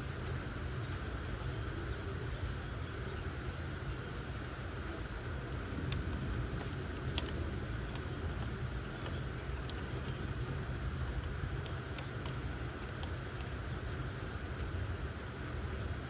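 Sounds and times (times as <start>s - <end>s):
sharp drip ticks: 5.5s - 16.0s.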